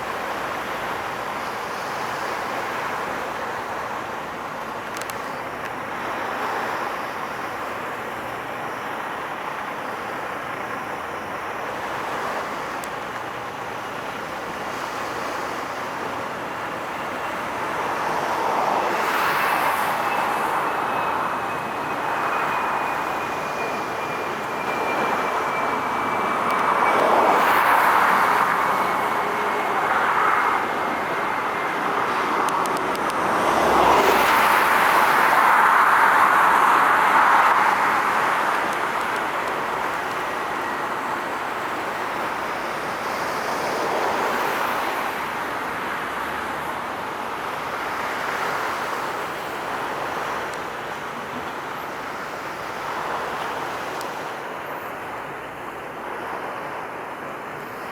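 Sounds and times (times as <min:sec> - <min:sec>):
passing road traffic: 0:00.0 - 0:57.9
faint high whine falling in pitch: 0:15.2 - 0:36.9.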